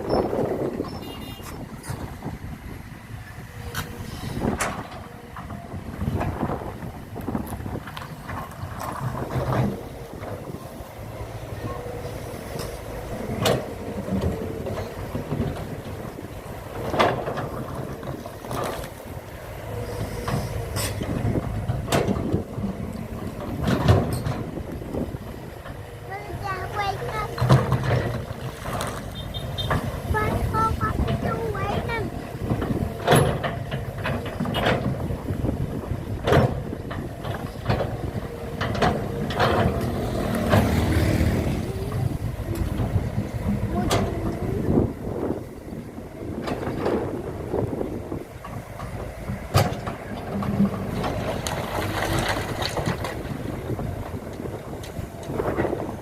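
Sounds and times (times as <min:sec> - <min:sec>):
low machinery rumble: 0:00.0 - 0:56.0
sharp knocks and clanks: 0:25.6 - 0:35.1, 0:48.4 - 0:53.2.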